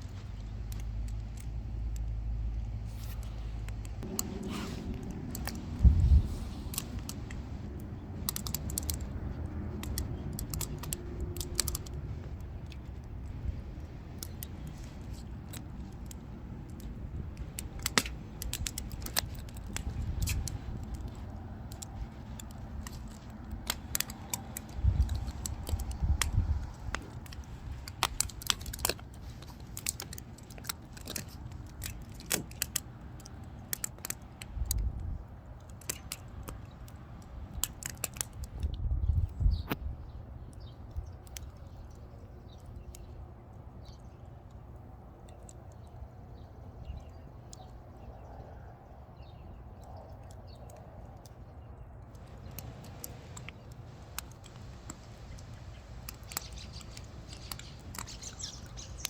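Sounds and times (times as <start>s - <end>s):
low rumbles: 0.0s - 35.4s
wood fire crackling and popping: 0.0s - 38.8s, 52.1s - 59.0s.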